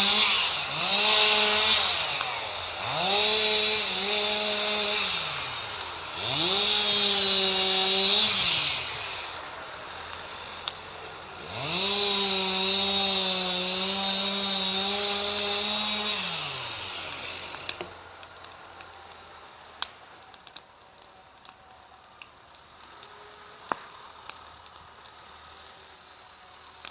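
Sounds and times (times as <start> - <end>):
chainsaw revving: 0.0 - 18.0.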